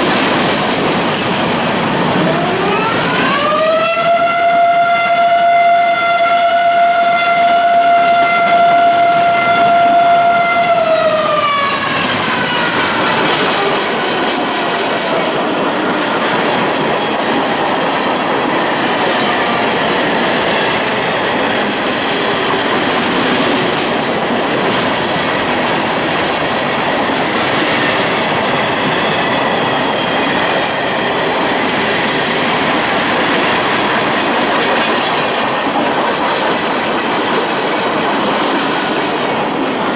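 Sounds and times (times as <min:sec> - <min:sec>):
train wheels clacking on rails: 0:00.0 - 0:04.3, 0:07.3 - 0:39.9
train horn blast: 0:02.4 - 0:13.8.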